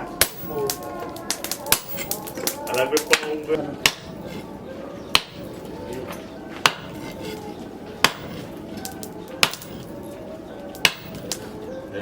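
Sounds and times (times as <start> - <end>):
hammer striking steel: 0.2 - 2.2, 3.0 - 4.4, 5.1 - 5.7, 6.6 - 7.4, 8.0 - 9.9, 10.7 - 11.4.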